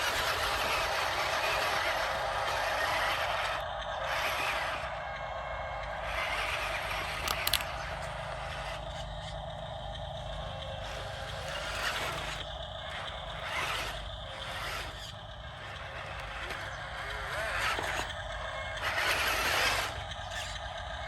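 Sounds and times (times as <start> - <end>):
scraping on dirt: 0.0 - 4.8, 6.1 - 8.8, 10.8 - 20.6
electric motor and gears whirring: 0.0 - 21.0
sharp clicks: 6.1 - 10.0.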